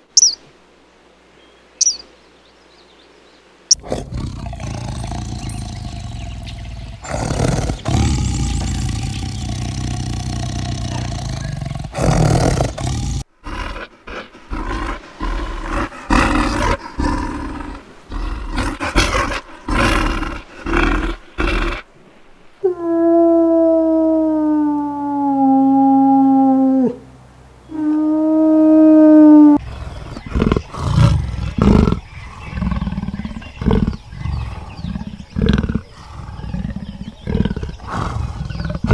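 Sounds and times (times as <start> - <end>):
large animals roaring and growling: 3.8 - 21.8, 27.7 - 38.9.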